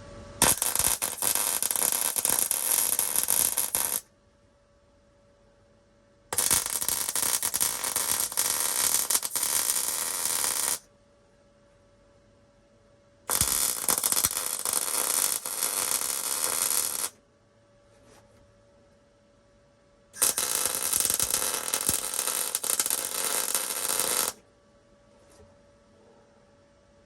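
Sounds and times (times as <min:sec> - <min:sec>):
welder crackling: 0:00.4 - 0:04.0, 0:06.4 - 0:10.8, 0:13.3 - 0:17.2, 0:20.2 - 0:24.4.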